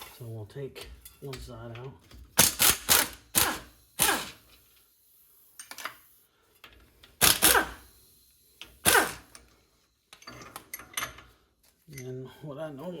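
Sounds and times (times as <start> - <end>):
wrench clanking on metal bolts: 10.1 - 11.3.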